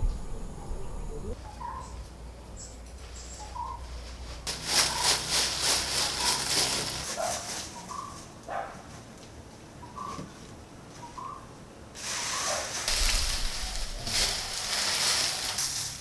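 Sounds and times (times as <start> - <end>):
faint low hum: 0.0 - 4.5
crackling rustling noise: 2.8 - 9.4, 12.0 - 16.0.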